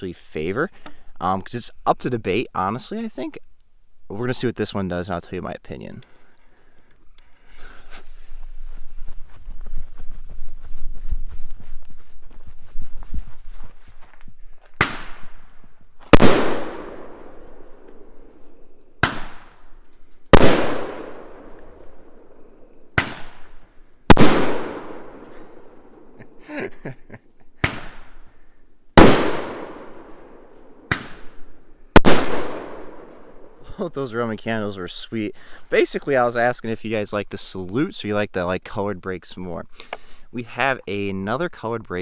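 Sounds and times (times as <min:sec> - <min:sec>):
firework bangs: 0:14.8 - 0:15.4, 0:16.1 - 0:17.8, 0:19.0 - 0:19.6, 0:20.3 - 0:21.8, 0:23.0 - 0:26.1, 0:27.6 - 0:28.2, 0:29.0 - 0:31.4, 0:32.0 - 0:33.4
firework launch pops: 0:14.8 - 0:15.4, 0:19.0 - 0:19.6, 0:23.0 - 0:25.3, 0:27.6 - 0:28.2, 0:30.9 - 0:31.4.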